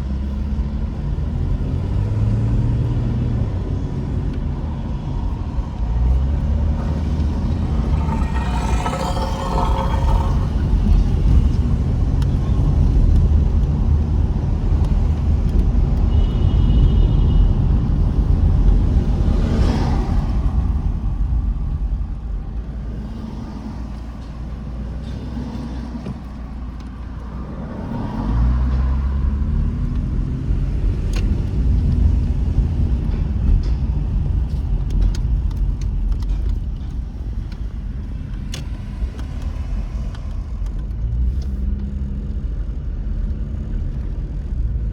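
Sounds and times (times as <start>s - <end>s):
road rumble: 0.0s - 16.1s.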